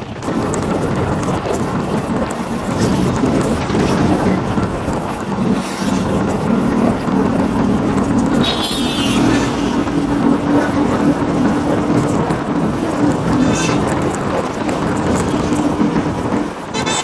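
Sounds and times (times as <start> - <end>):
motorcycle engine running: 0.0 - 16.6
wind rushing over microphone: 0.0 - 16.9
high-pitched wavering sound: 4.1 - 15.6.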